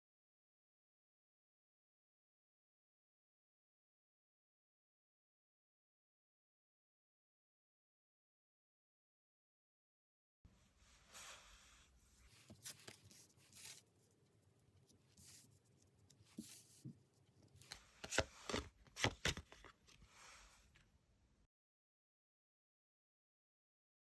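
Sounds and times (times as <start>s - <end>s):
cards shuffling: 12.3s - 13.9s, 17.6s - 20.4s
card snaps: 17.7s - 19.7s.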